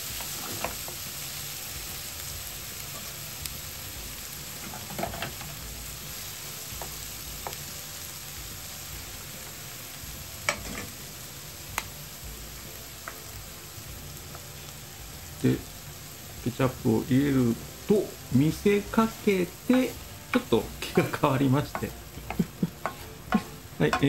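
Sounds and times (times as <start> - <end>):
food sizzling in a frying pan: 0.0 - 24.0
spatula clacking against pan: 21.8 - 24.0.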